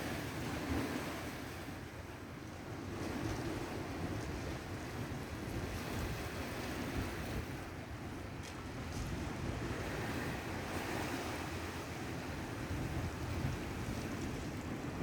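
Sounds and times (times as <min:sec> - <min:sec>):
sea wash: 0:00.0 - 0:15.0
wind buffeting microphone: 0:12.2 - 0:15.0.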